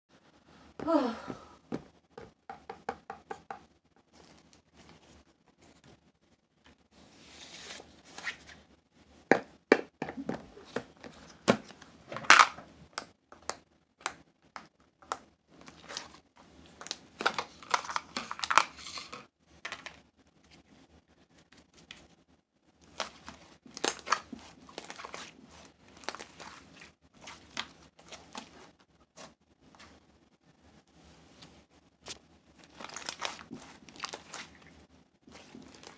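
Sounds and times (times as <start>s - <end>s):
crinkling and tearing: 22.8s - 29.3s, 32.0s - 35.9s.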